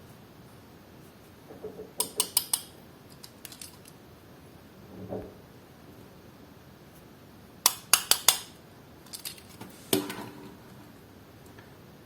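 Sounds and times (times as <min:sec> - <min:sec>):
metal toy cars clicking: 0:02.0 - 0:04.0, 0:07.7 - 0:09.6.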